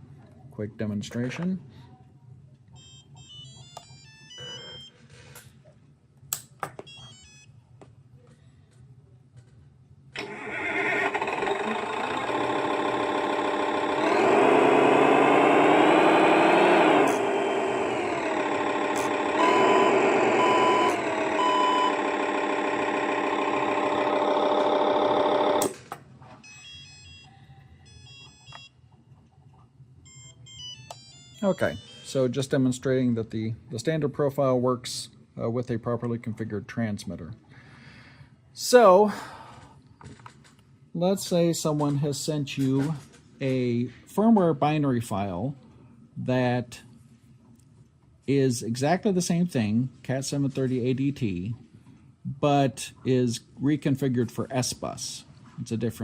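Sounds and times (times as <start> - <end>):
electronic beep tunes: 2.8 - 5.0, 19.4 - 22.0, 27.9 - 28.7, 30.1 - 32.2
synthesized truck engine revving: 10.7 - 25.7
steady low hum: 11.6 - 25.8.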